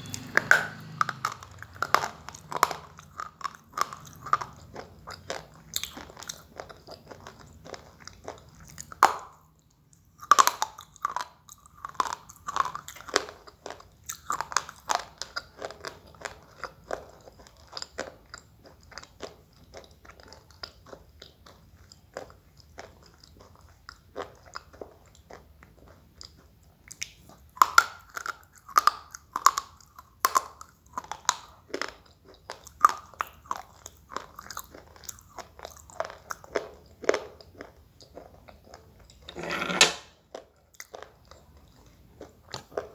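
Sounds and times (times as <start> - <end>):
crunchy biting and chewing: 0.0 - 9.4.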